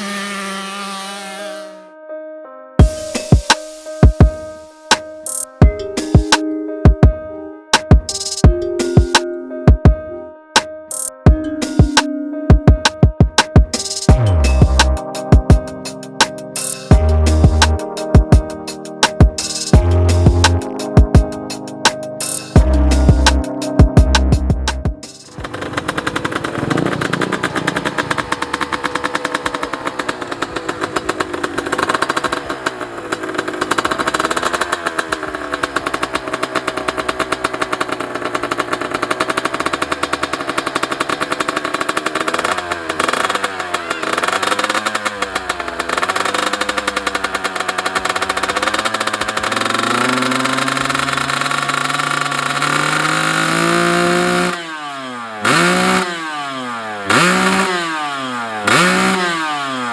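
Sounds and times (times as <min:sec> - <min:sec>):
motorcycle engine revving: 0:00.0 - 0:01.8, 0:15.8 - 0:18.0, 0:19.6 - 0:21.7, 0:22.3 - 0:59.9.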